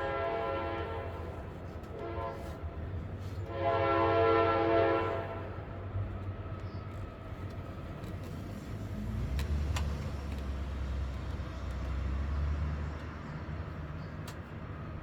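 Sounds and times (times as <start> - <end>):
horn blasts: 0.0 - 2.7, 3.5 - 5.6.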